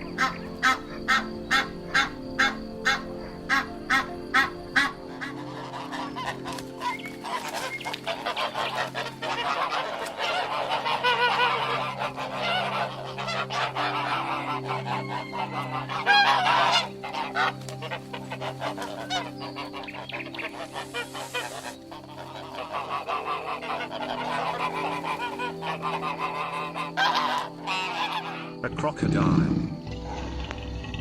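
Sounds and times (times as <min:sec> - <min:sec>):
geese honking: 0:00.0 - 0:31.0.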